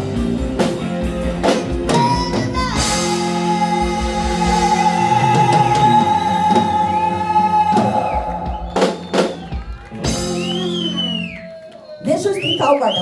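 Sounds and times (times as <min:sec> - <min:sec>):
live rock band playing: 0:00.0 - 0:11.7.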